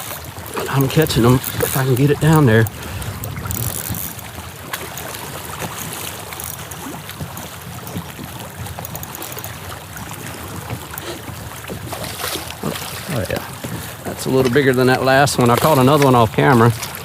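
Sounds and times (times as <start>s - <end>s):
water lapping against a hull: 0.0s - 17.0s
wind rumble on microphone: 0.2s - 8.8s.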